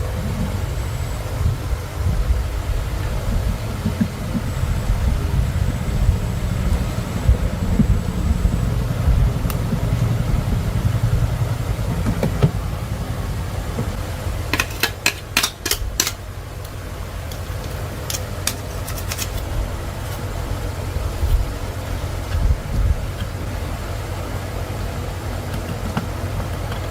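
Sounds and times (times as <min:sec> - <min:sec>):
engine running with low rumble: 0:00.0 - 0:26.9
sharp clicks or knocks: 0:14.5 - 0:16.2.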